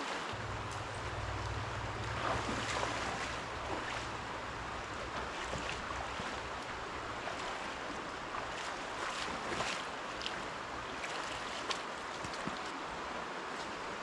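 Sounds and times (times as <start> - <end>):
river water flowing over rocks: 0.0 - 14.0
faint light ticks: 0.6 - 2.1.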